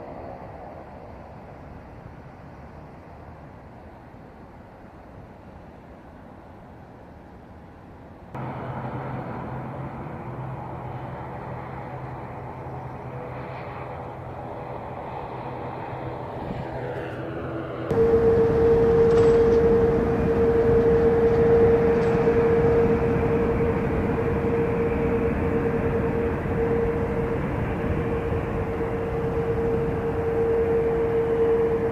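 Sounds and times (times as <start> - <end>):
jet aircraft noise: 8.4 - 31.9.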